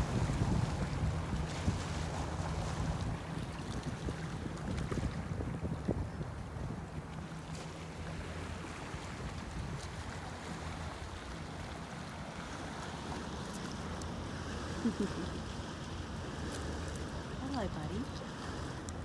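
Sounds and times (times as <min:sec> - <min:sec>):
wind noise on microphone: 0:00.0 - 0:06.9.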